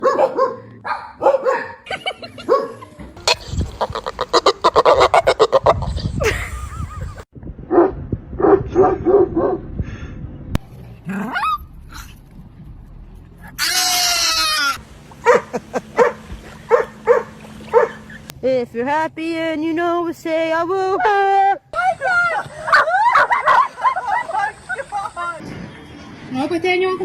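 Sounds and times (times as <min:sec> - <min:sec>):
dog yelping: 0:00.0 - 0:02.8, 0:11.1 - 0:11.7, 0:13.5 - 0:18.3
dog barking and yipping: 0:00.0 - 0:02.9, 0:13.7 - 0:18.3
dog rapid pulsed calls: 0:15.2 - 0:18.3.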